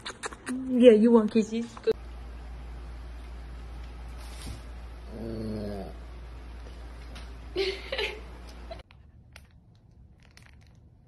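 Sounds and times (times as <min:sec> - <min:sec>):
dog grumbling whine: 0:05.1 - 0:06.0.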